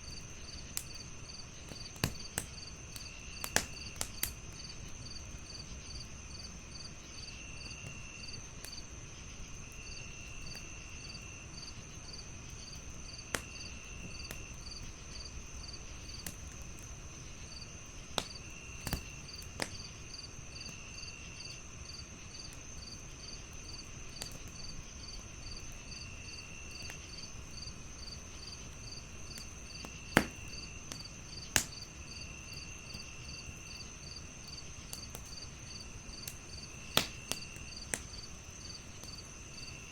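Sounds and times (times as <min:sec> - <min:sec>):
crickets chirping: 0:00.0 - 0:39.9
wood fire crackling: 0:00.0 - 0:39.9
fire pops: 0:01.6 - 0:05.1, 0:12.6 - 0:20.8, 0:22.5 - 0:39.8.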